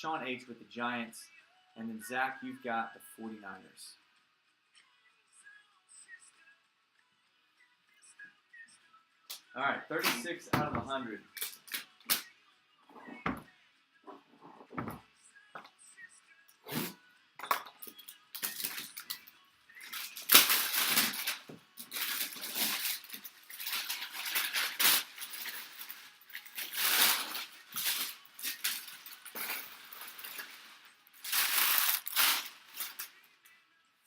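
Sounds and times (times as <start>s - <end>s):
packaging rustling and scraping: 19.8s - 33.2s.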